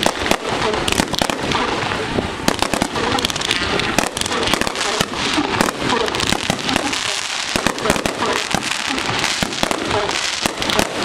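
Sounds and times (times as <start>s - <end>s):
fireworks bangs and crackle: 0.0s - 11.0s.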